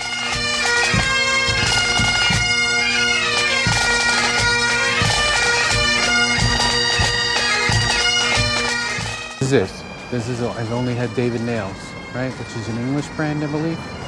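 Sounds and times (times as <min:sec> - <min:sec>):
bagpipe playing: 0:00.0 - 0:14.0
low thumps: 0:00.3 - 0:13.6.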